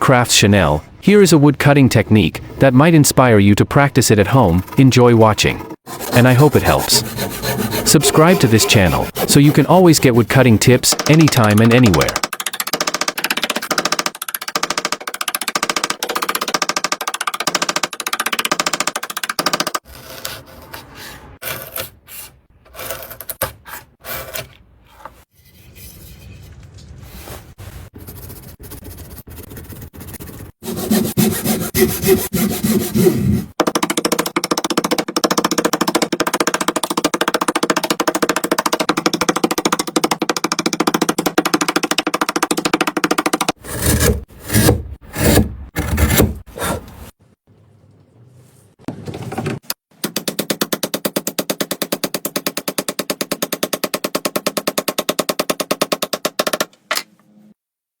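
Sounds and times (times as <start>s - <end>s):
wood being cut with rasping scrapes: 4.2s - 11.2s, 29.5s - 33.6s, 43.6s - 47.2s.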